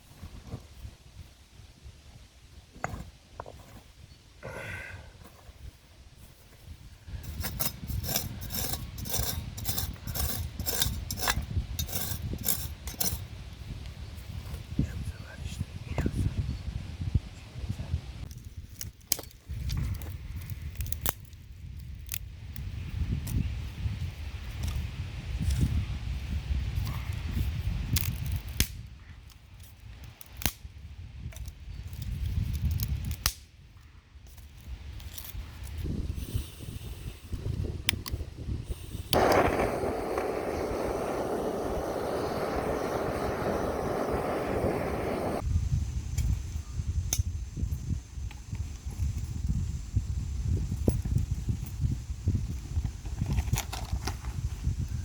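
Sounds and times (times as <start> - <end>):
hand coffee grinder grinding: 7.3 - 13.2
low uneven rumble: 39.1 - 45.4.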